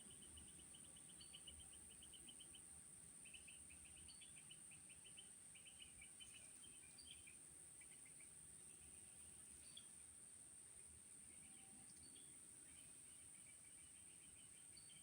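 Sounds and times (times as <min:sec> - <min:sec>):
faint bird-like chirping: 0:00.0 - 0:10.1.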